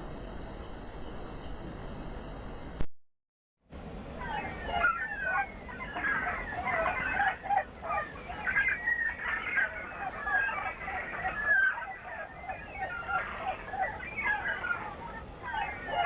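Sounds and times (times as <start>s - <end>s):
chickens clucking: 4.2s - 16.0s.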